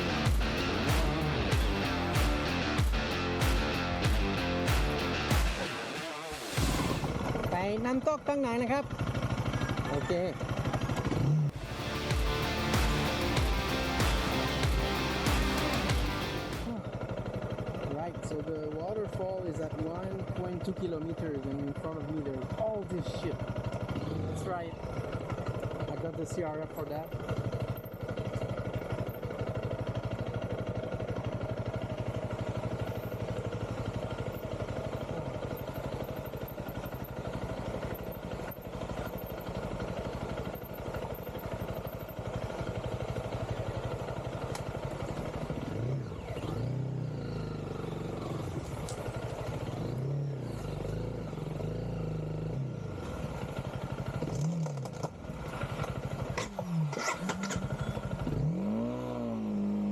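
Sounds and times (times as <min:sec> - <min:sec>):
dirt bike engine revving: 0:00.0 - 0:07.8, 0:08.9 - 0:17.2, 0:45.1 - 0:59.9.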